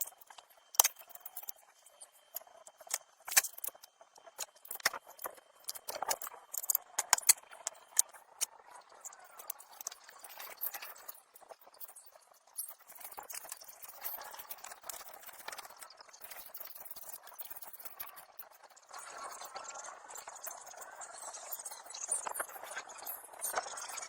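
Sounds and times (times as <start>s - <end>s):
sharp clicks and light knocks: 2.7s - 8.5s.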